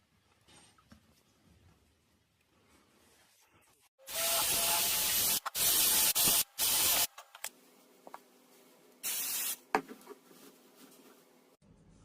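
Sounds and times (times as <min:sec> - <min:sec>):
aerosol spray hissing: 0:04.4 - 0:07.1, 0:09.0 - 0:09.6.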